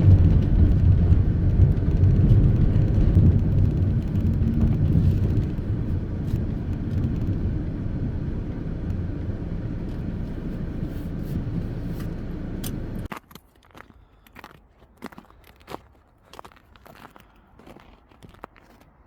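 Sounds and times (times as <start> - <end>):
car engine rumble: 0.0 - 13.1
road noise: 0.0 - 13.2.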